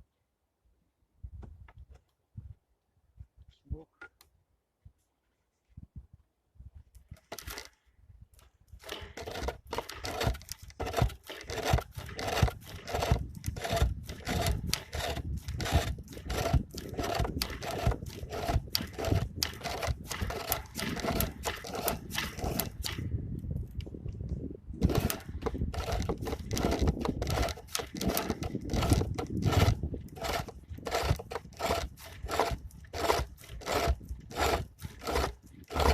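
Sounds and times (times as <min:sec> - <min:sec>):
tool scraping wood: 0:07.2 - 0:07.8, 0:08.8 - 0:23.1, 0:24.8 - 0:35.9
wooden lathe turning: 0:07.2 - 0:07.8, 0:08.8 - 0:23.1, 0:24.8 - 0:35.9.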